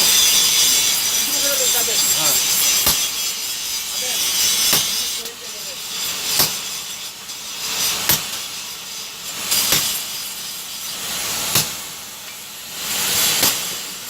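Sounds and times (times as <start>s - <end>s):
steady hiss: 0.0s - 14.0s
hammer striking metal anvil: 4.3s - 5.2s, 6.3s - 6.7s, 13.4s - 13.7s.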